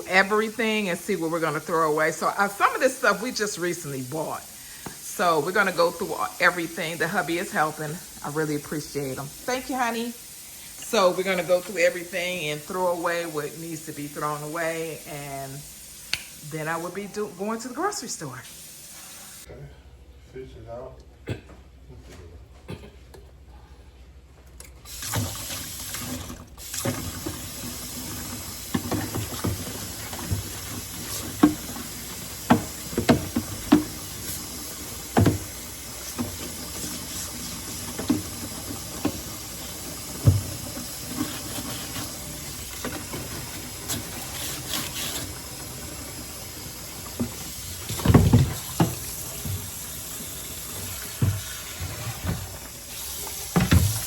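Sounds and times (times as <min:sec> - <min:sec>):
tap running into sink: 0:24.9 - 0:54.0.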